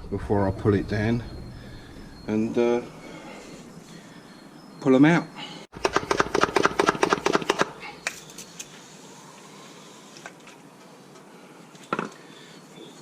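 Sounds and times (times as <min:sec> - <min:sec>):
steady low hiss: 0:00.0 - 0:05.4.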